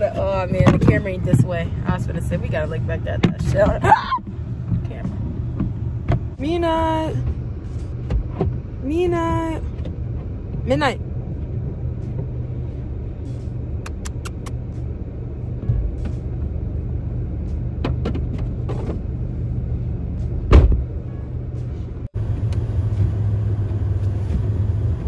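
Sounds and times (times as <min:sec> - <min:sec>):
car driving rumble inside cabin: 0:00.0 - 0:25.0
thump: 0:20.5 - 0:20.9.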